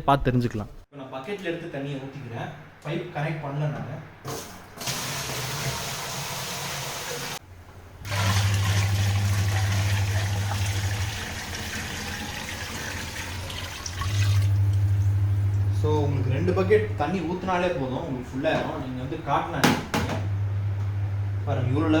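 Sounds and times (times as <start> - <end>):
water pouring into plastic tub: 8.0 - 14.6
low hum: 14.4 - 19.5, 20.2 - 22.0.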